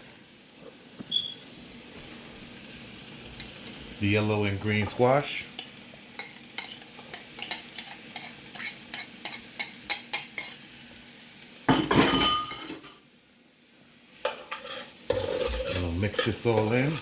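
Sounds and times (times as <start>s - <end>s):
faint sizzle: 0.0s - 17.0s
utensil clicking against pan: 5.5s - 10.6s.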